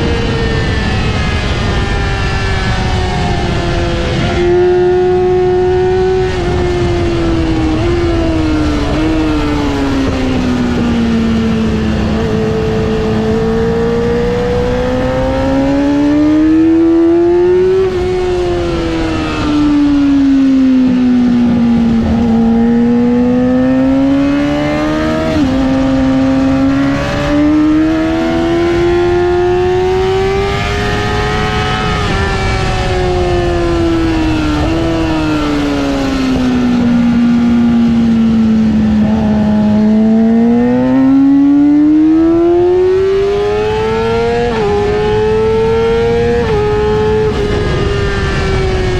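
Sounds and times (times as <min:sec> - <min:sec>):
high-revving motorcycle engine: 0:00.0 - 0:48.9
wind and road noise: 0:00.0 - 0:48.9.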